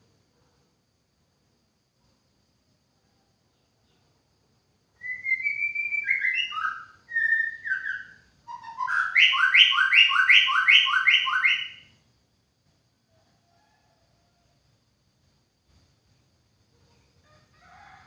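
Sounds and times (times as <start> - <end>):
bird singing whistled phrases: 5.0 - 11.9.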